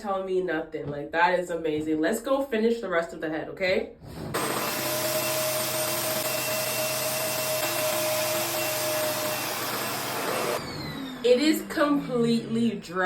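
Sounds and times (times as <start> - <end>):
hair dryer running: 4.4 - 13.0.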